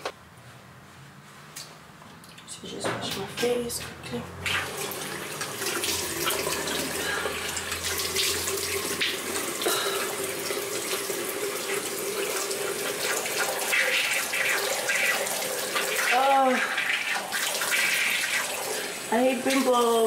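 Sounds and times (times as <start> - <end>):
tap water running into sink: 3.1 - 20.0
water splashing: 4.4 - 20.0.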